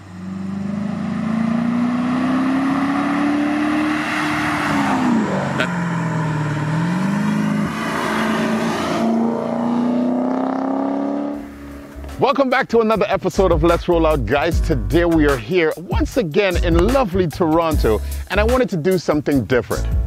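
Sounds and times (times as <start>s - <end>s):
car engine accelerating: 0.0s - 12.2s.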